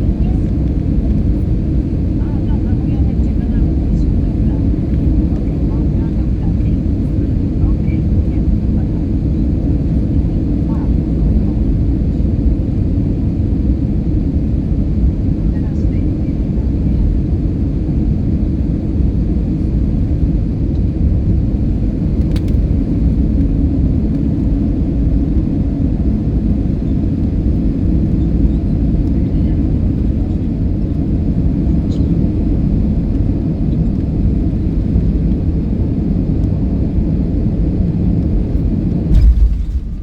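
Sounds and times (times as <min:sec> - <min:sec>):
airplane cabin rumble: 0:00.0 - 0:40.0
landing thump: 0:39.1 - 0:40.0.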